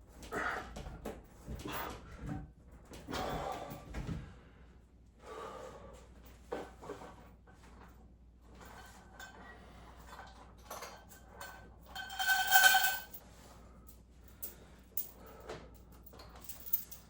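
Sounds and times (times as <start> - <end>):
gym equipment knocking and clinking: 11.9 - 13.2.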